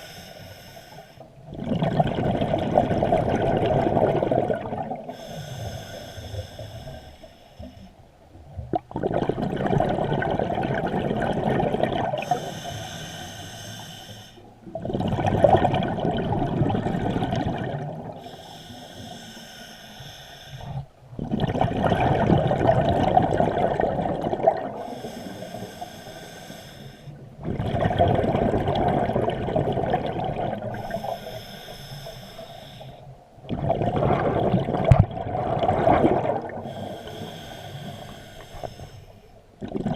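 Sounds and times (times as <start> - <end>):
regulator inhale hiss: 0.0 - 1.3, 5.1 - 8.0, 12.2 - 14.6, 18.2 - 20.9, 24.8 - 27.2, 30.7 - 33.2, 36.6 - 39.4
exhaled bubbles rushing: 1.5 - 5.1, 8.6 - 12.4, 14.6 - 18.2, 21.1 - 24.9, 27.4 - 31.1, 33.4 - 36.8, 39.6 - 39.9.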